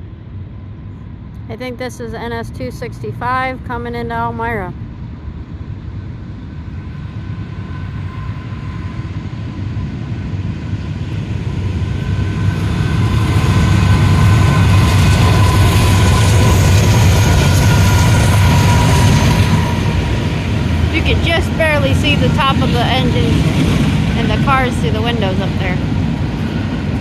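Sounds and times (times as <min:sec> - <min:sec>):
freight train rumbling past: 0:00.0 - 0:27.0
thin steady whine: 0:11.9 - 0:27.0.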